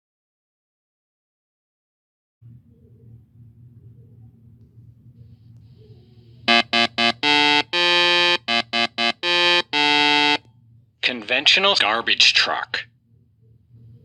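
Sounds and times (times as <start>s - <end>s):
faint low rumble: 2.4s - 7.1s
buzzy horn blasts: 6.5s - 10.4s.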